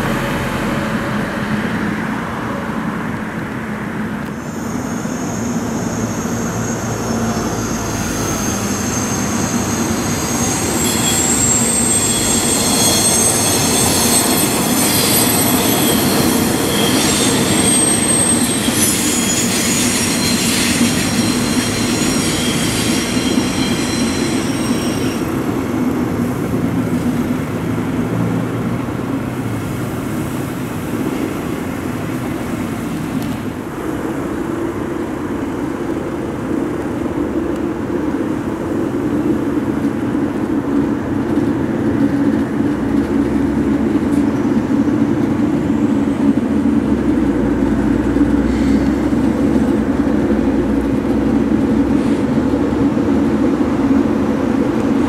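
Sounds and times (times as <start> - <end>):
train wheels rumbling on track: 0.0 - 55.0
wheels squealing on curve: 4.4 - 25.6.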